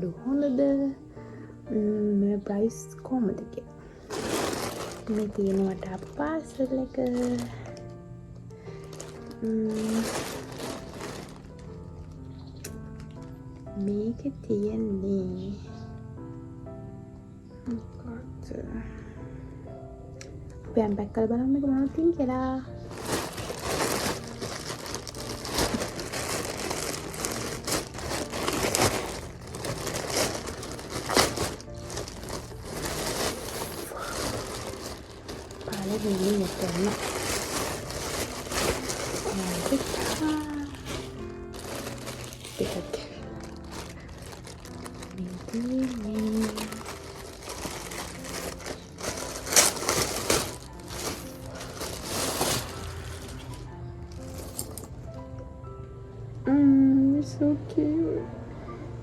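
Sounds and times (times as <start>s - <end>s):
background music: 0.0s - 59.0s
plastic packaging tearing and crinkling: 4.1s - 7.9s, 8.6s - 13.3s, 22.8s - 54.9s.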